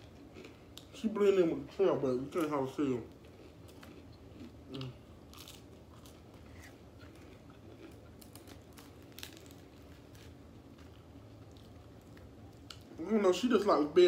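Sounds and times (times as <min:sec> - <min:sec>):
chewing crispy fried chicken: 0:00.0 - 0:14.0
meat crackling as pulled apart: 0:04.7 - 0:12.9.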